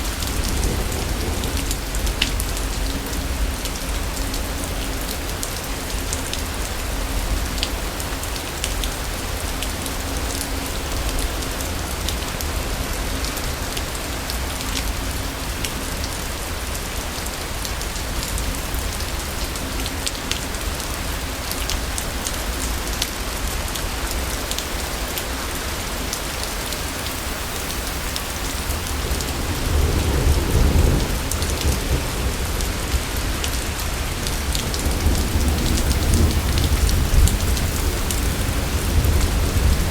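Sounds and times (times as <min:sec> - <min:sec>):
low roll of thunder: 0:00.0 - 0:04.5, 0:28.6 - 0:39.9
heavy rain: 0:00.0 - 0:39.9.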